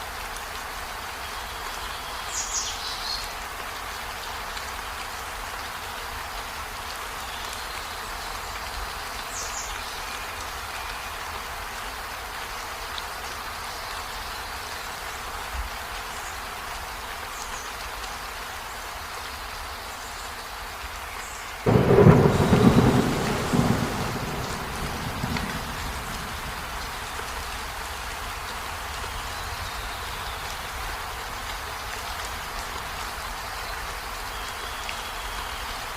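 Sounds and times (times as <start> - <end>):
steady rain falling: 0.0 - 35.9
thunder clap rumbling: 21.7 - 27.8.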